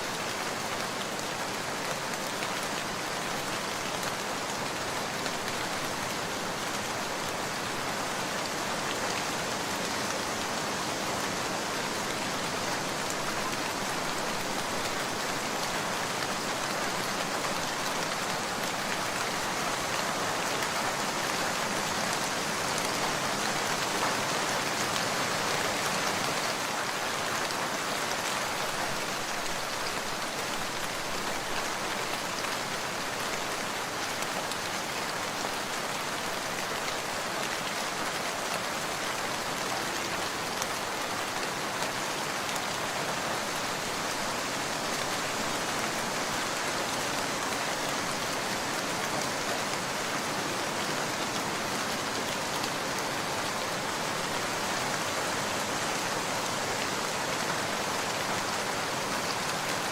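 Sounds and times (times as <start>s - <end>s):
dense rainfall: 0.0s - 59.9s.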